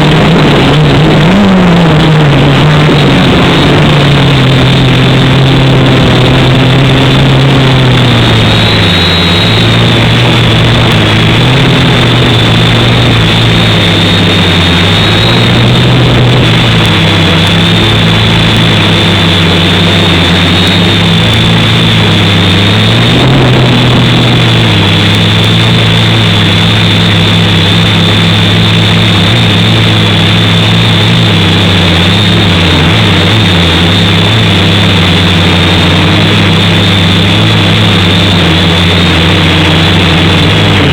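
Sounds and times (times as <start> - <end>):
quadcopter motors humming: 0.0 - 40.9.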